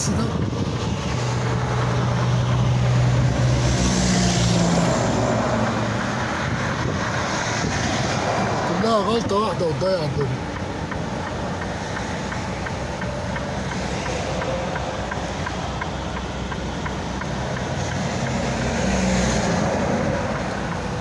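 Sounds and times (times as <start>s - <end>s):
road and wind noise: 0.0s - 21.0s
truck engine hum: 0.0s - 21.0s
faint regular ticking: 8.8s - 18.8s, 19.5s - 21.0s.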